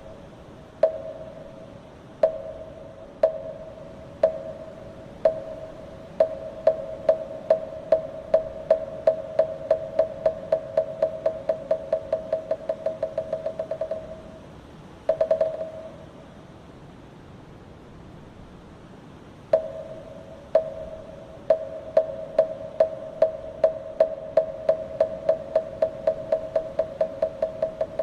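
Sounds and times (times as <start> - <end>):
wooden fish knocking: 2.2 - 14.3, 15.1 - 15.9, 20.6 - 28.0.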